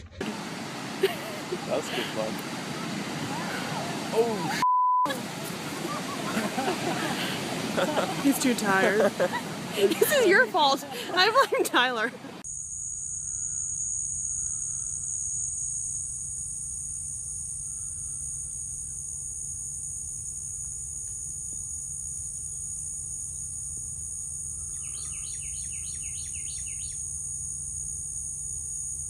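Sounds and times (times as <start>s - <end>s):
insect chorus: 0.2s - 4.6s, 12.4s - 29.0s.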